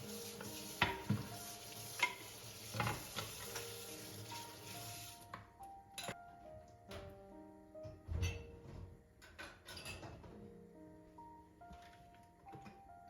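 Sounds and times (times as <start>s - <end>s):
food sizzling in a pan: 0.0s - 5.3s.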